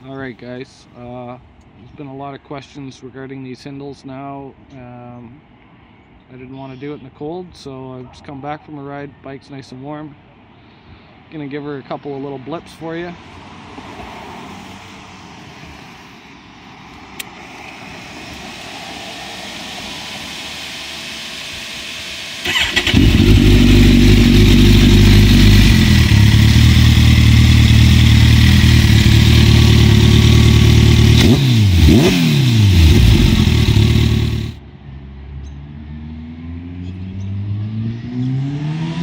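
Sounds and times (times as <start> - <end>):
motorcycle engine idling: 19.1 - 34.6
motorcycle throttle blips: 21.7 - 34.6.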